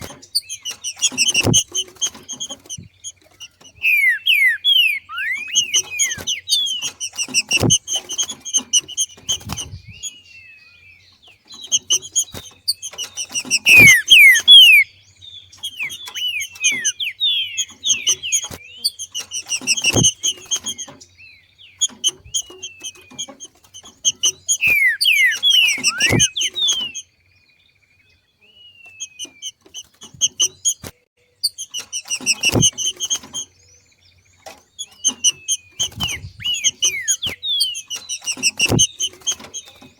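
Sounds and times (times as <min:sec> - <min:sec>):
bird chattering call: 0:00.0 - 0:10.2, 0:11.5 - 0:27.1, 0:34.8 - 0:39.9.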